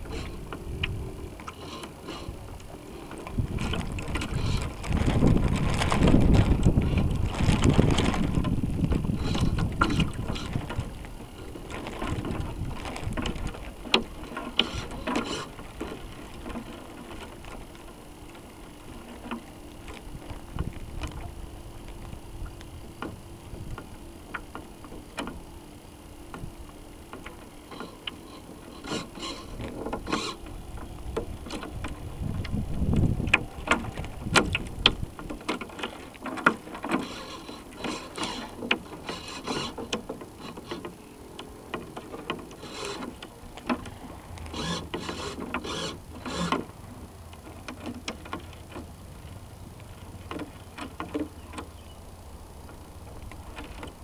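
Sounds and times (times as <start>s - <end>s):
wind on microphone: 0.0s - 1.5s, 2.1s - 13.8s, 20.0s - 22.9s, 28.8s - 35.5s
water splashing along hull: 0.0s - 54.0s
small clicks and knocks: 9.2s - 18.4s, 21.9s - 25.4s, 27.1s - 46.7s, 47.3s - 48.9s, 49.8s - 51.7s.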